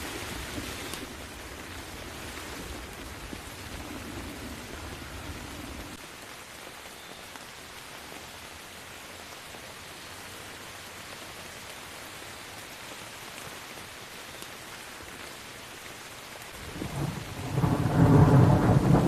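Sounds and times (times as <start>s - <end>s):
steady rain falling: 0.0s - 19.0s
distant thunder rumble: 0.2s - 6.0s, 16.6s - 19.0s.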